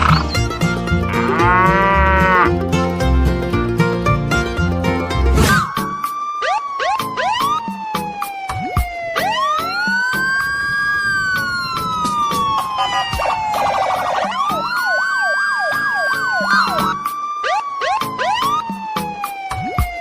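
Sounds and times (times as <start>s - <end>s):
siren wailing and yelping: 5.7s - 20.0s.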